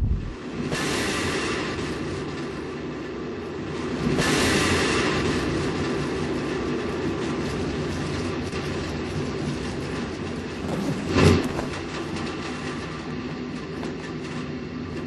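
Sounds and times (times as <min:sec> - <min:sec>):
rocket engines roaring: 0:00.0 - 0:03.4.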